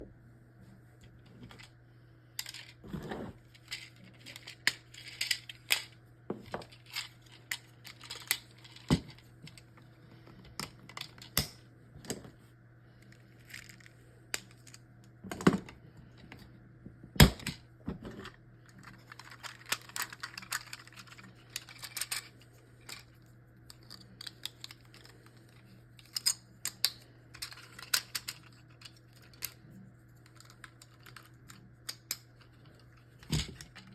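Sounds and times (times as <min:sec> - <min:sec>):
plastic toy parts clicking: 0:03.6 - 0:06.0, 0:06.7 - 0:09.6, 0:18.8 - 0:23.1, 0:23.7 - 0:29.6, 0:30.2 - 0:32.4.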